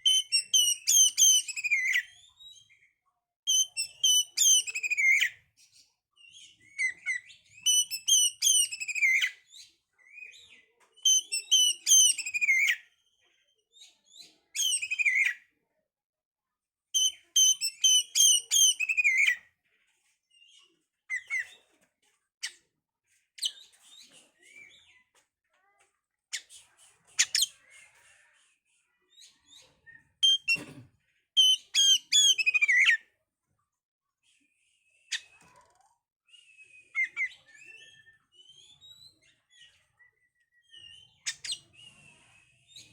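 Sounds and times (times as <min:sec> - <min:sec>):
magpie-robin singing: 0:00.0 - 0:02.7, 0:03.5 - 0:05.4, 0:06.3 - 0:13.0, 0:14.1 - 0:15.4, 0:17.0 - 0:19.4, 0:27.2 - 0:27.6, 0:29.2 - 0:30.6, 0:31.4 - 0:33.0, 0:36.3 - 0:42.9.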